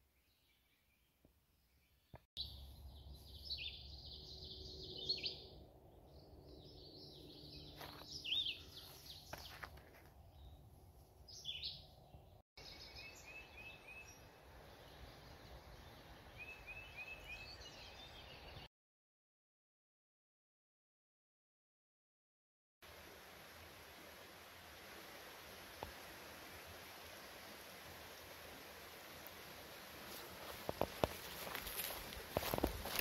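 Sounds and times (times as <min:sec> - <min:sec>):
small birds singing and chirping: 0:01.6 - 0:09.7, 0:11.3 - 0:18.7.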